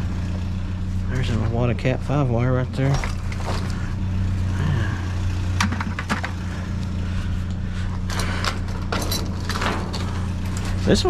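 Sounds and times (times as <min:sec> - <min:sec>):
vehicle engine idling: 0:00.0 - 0:11.0
items clicking and rattling: 0:05.6 - 0:06.4, 0:08.0 - 0:11.0.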